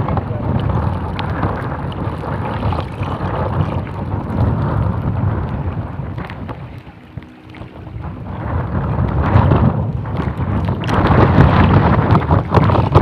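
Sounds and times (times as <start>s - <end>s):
gusting wind on microphone: 0.0s - 13.0s.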